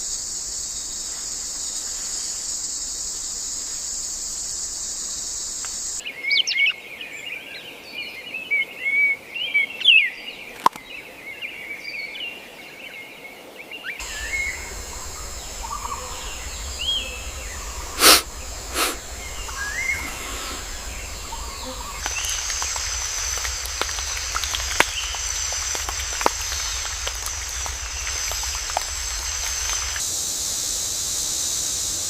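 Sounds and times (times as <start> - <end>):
high-pitched insect chorus: 0.0 - 6.0, 14.0 - 32.0
quick bird chirps: 14.0 - 30.0
short loud noises: 14.0 - 30.0.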